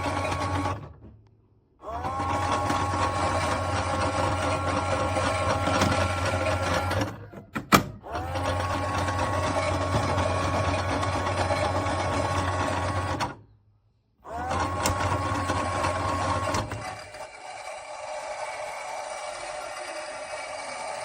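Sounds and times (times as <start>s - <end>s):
small electric motor whirring: 14.3s - 21.0s.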